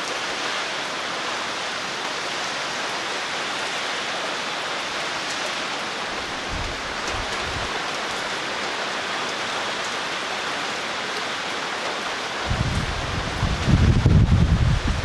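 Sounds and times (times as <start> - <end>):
heavy rain falling: 0.0 - 15.0
wind gusts buffeting microphone: 6.0 - 8.4, 12.3 - 15.0.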